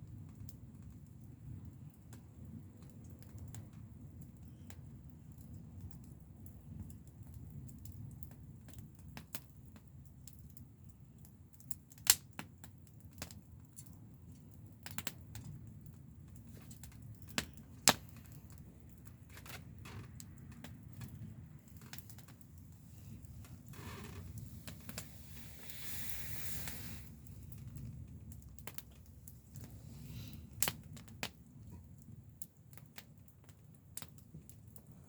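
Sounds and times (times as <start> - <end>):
wood fire crackling: 0.0 - 35.0
loud pops from fire: 11.6 - 13.9, 14.7 - 34.9.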